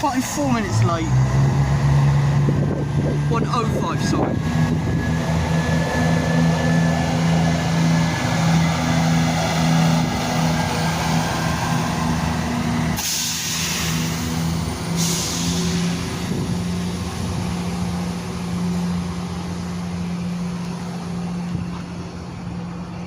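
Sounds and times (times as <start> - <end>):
diesel train engines droning: 0.0 - 23.0
air hiss bursts: 13.0 - 14.2, 14.9 - 16.1.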